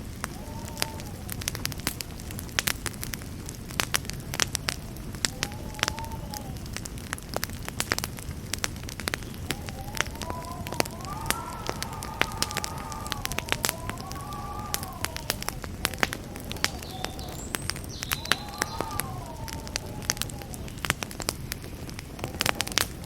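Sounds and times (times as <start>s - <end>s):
campfire crackling: 0.0s - 23.0s
faint wavering whistle: 9.3s - 20.9s.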